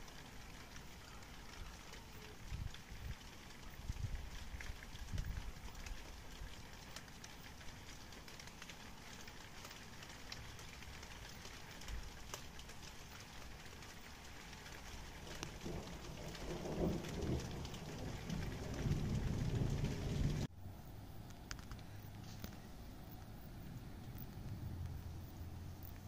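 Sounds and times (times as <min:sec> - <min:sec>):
drops ticking: 0:00.0 - 0:20.5
steady rain falling: 0:00.0 - 0:20.5
thunder rumbling: 0:14.7 - 0:20.5.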